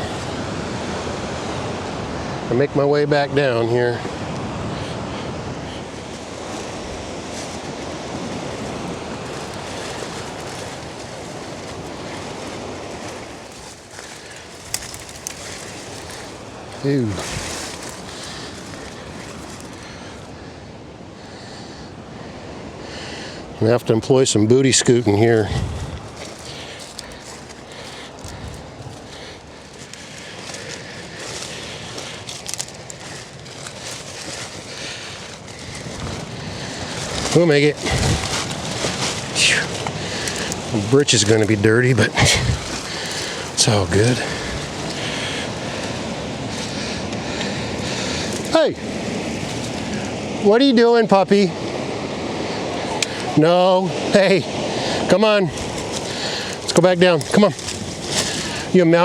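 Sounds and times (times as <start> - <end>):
surf breaking on beach: 0.0 - 59.0
dirt and gravel crunching: 5.7 - 20.4, 24.5 - 50.4, 54.2 - 59.0.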